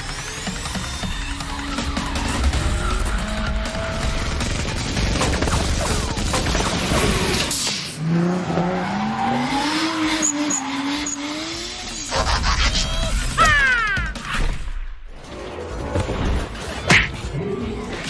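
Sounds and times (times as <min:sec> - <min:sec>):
car engine revving: 0:00.3 - 0:12.5.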